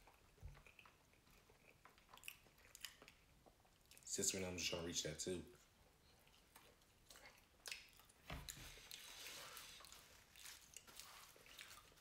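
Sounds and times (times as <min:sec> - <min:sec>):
chewing french fries: 0:00.0 - 0:04.2, 0:05.5 - 0:12.0
wet mouth clicks and smacks: 0:07.1 - 0:08.2.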